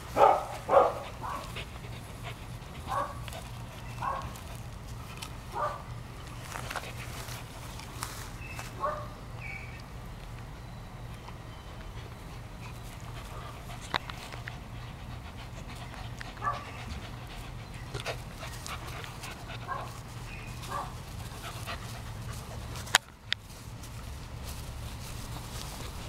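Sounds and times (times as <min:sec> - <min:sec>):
dog panting: 0:00.1 - 0:05.7, 0:06.4 - 0:07.9, 0:11.8 - 0:23.1.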